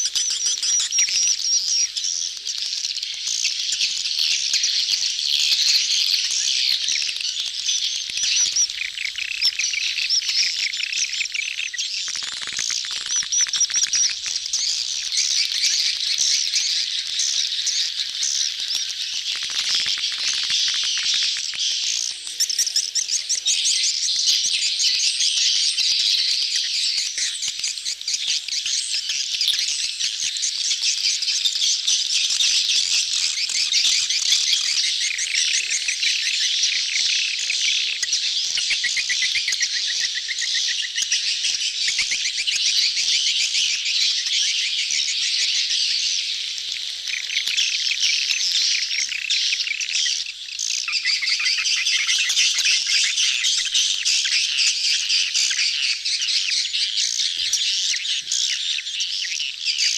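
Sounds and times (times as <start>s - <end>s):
swiftlets chattering and twittering: 0.0s - 59.9s.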